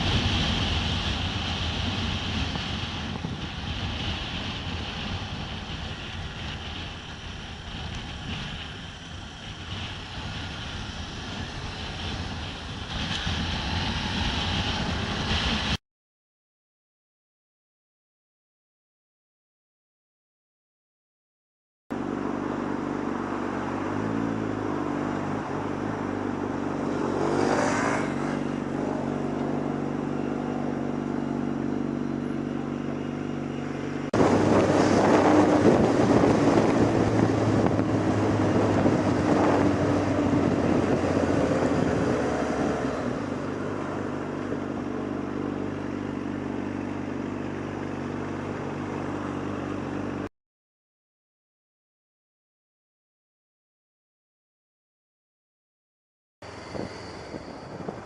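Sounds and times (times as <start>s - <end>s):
road noise: 0.0s - 15.8s, 21.9s - 50.3s, 56.4s - 58.0s
traffic noise: 0.0s - 15.8s, 21.9s - 50.3s, 56.4s - 58.0s
vehicle engine running: 21.9s - 50.3s.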